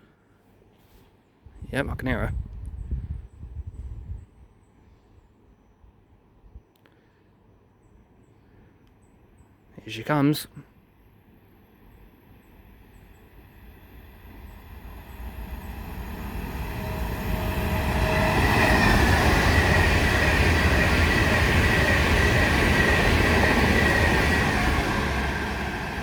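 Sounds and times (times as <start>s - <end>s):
electric train passing: 11.0s - 26.0s
high whine: 12.9s - 26.0s.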